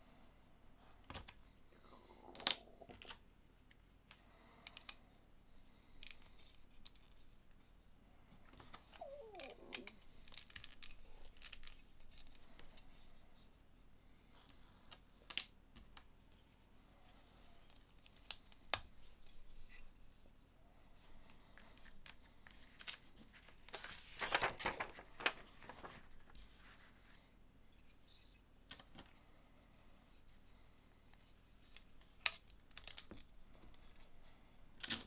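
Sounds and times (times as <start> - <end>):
plastic pieces clicking: 9.1 - 12.4.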